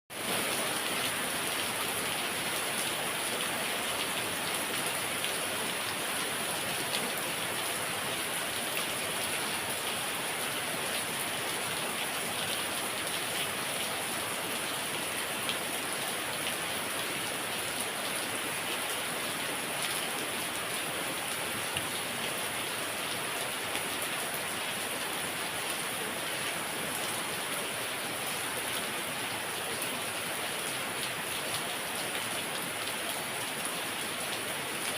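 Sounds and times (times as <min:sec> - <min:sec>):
heavy rain: 0:00.1 - 0:34.9.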